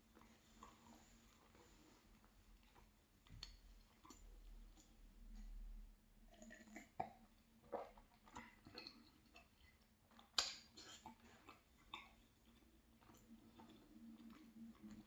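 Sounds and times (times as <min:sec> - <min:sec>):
close-up chewing: 0:00.0 - 0:05.6, 0:06.3 - 0:15.0
crunchy mouth clicks: 0:06.3 - 0:15.0.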